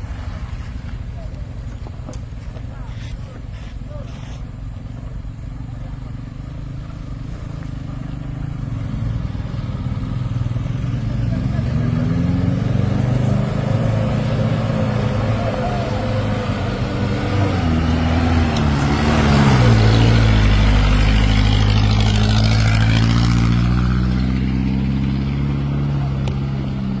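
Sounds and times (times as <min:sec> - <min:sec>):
heavy truck engine labouring: 0:07.9 - 0:27.0.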